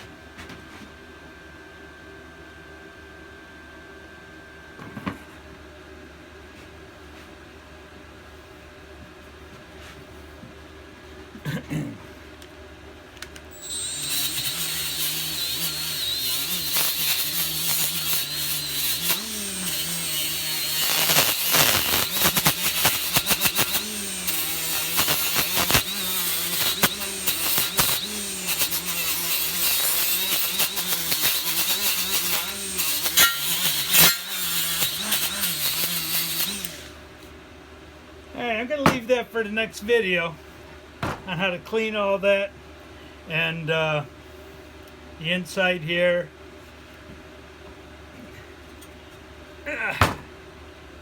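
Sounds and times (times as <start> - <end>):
electric power tool motor: 13.5 - 37.0
rough scraping on metal: 13.6 - 36.9.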